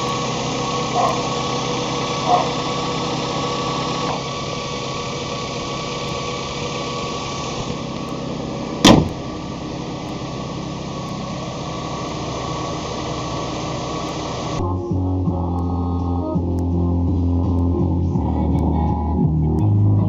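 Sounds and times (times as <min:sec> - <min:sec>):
car engine idling: 0:00.0 - 0:20.0
sharp knock: 0:08.8 - 0:09.2.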